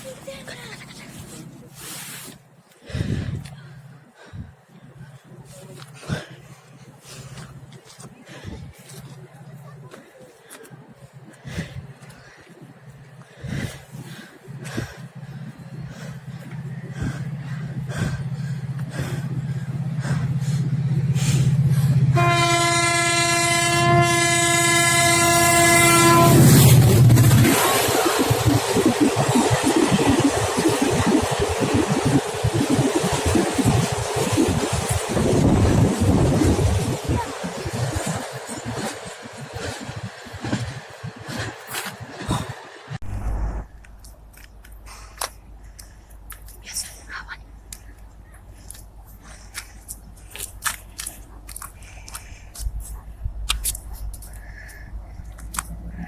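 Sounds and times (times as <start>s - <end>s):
locomotive engine rumble: 0.0s - 56.0s
freight train passing: 3.4s - 46.5s
train horn blast: 22.1s - 27.6s
wheel-on-rail clatter: 27.2s - 43.0s.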